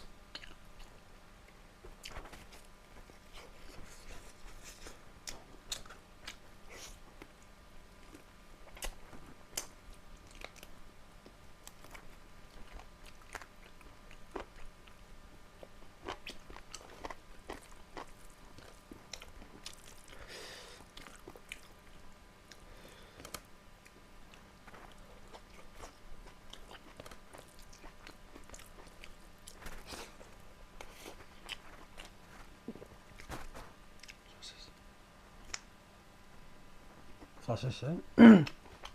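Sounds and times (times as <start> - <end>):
person chewing and biting: 8.0 - 15.0, 15.6 - 20.2, 20.8 - 21.8, 23.2 - 34.2.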